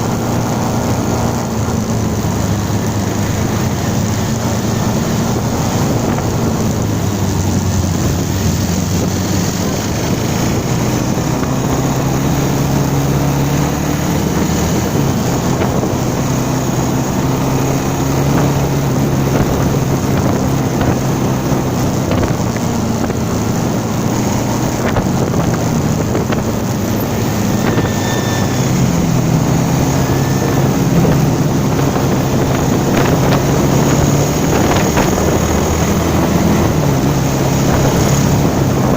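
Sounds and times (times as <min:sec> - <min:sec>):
vehicle engine running: 0:00.0 - 0:38.9
wind noise on microphone: 0:00.0 - 0:38.9.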